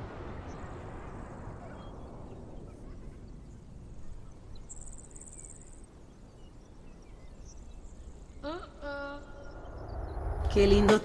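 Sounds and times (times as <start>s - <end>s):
faint low rumble: 0.0s - 11.0s.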